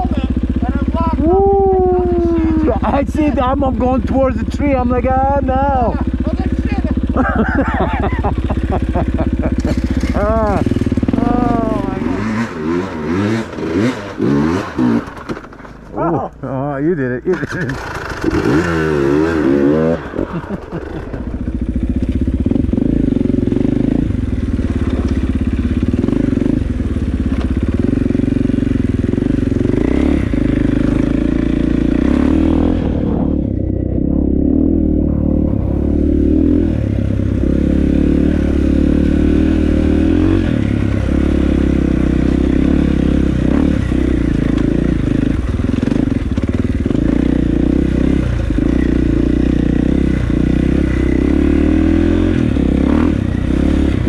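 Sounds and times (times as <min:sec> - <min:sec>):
motorcycle engine running under load: 0:00.0 - 0:54.0
clatter and knocks over rough ground: 0:09.6 - 0:10.3, 0:13.3 - 0:16.2, 0:24.6 - 0:25.4.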